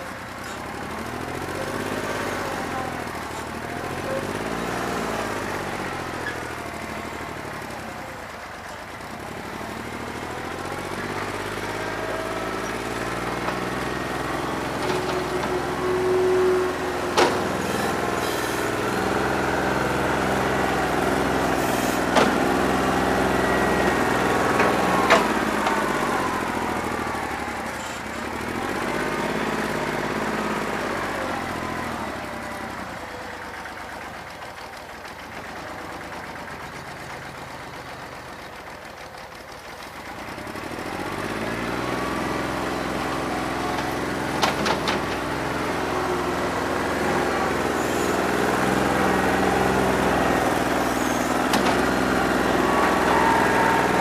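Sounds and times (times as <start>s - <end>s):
diesel tractor engine running rough: 0.0s - 54.0s.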